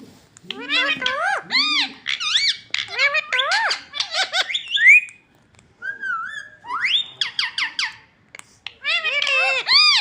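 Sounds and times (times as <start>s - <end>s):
parrot chirping and whistling: 0.6s - 5.2s, 5.8s - 8.0s.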